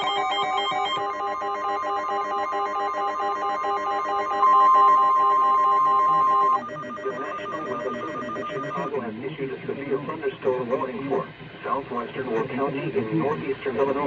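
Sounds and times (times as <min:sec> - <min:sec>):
electronic beeps: 0:00.0 - 0:08.9
steady warning alarm tone: 0:00.0 - 0:08.9.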